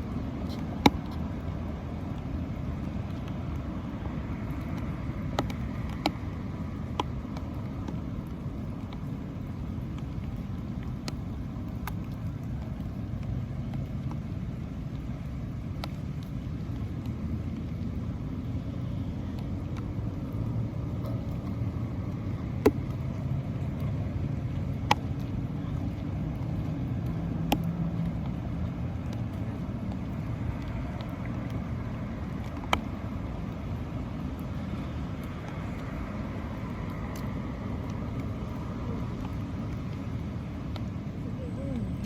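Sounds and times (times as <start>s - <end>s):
low outdoor rumble: 0.0s - 42.0s.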